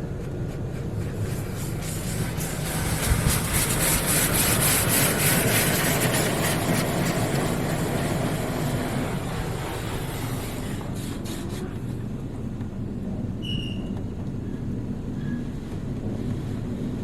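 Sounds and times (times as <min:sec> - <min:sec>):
car wash spray rushing hiss: 0:00.0 - 0:12.2
low machine hum: 0:00.0 - 0:17.0.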